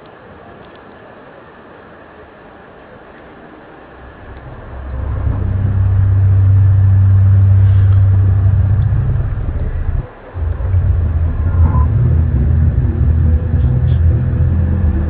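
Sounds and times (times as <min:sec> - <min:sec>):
loud low steady drone: 0:03.9 - 0:15.0.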